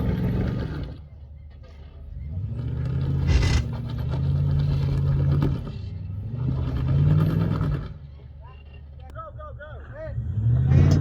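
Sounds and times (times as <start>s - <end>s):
off-road vehicle engine revving: 1.8s - 8.2s, 9.9s - 11.0s
brief clatter: 3.2s - 3.9s.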